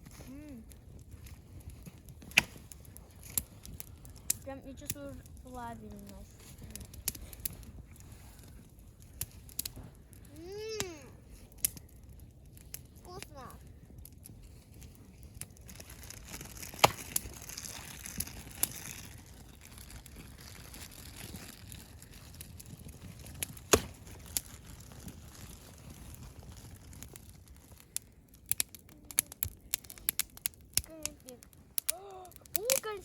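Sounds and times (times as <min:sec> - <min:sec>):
campfire crackling: 0:00.0 - 0:33.0
sharp pops of fire: 0:00.0 - 0:33.0.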